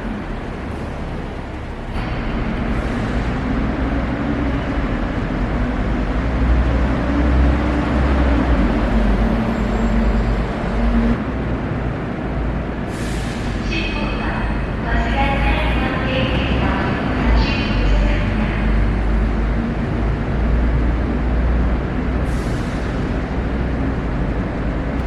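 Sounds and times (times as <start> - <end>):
bus driving past: 0.0 - 13.6.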